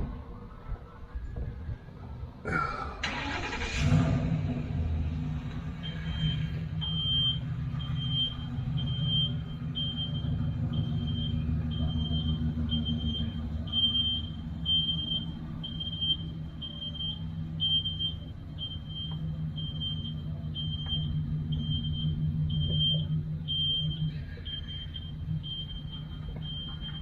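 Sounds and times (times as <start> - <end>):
electronic warning beeps: 5.8 - 27.0.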